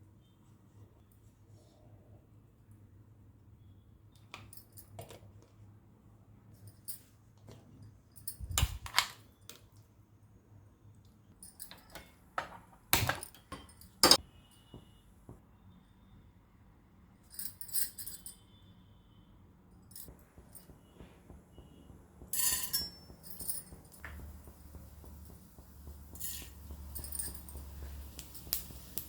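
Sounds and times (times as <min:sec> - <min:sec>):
kitchen utensils clinking: 0:11.6 - 0:14.2, 0:22.4 - 0:25.2, 0:25.9 - 0:28.7.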